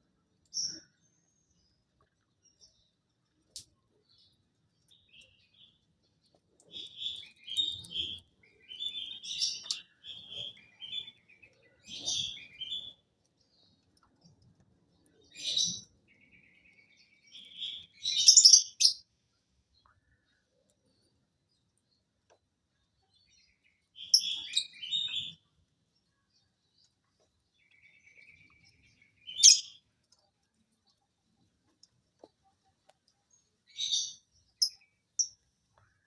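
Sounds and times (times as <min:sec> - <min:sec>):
lovebird chirping: 0:06.7 - 0:13.0, 0:15.3 - 0:19.0, 0:24.0 - 0:25.5, 0:27.6 - 0:29.9, 0:33.7 - 0:35.4.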